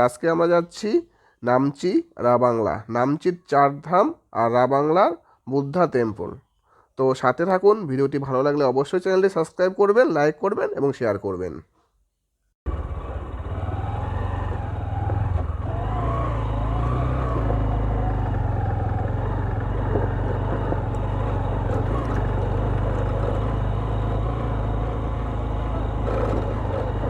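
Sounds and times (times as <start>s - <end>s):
motorcycle engine rumble: 12.7s - 27.0s.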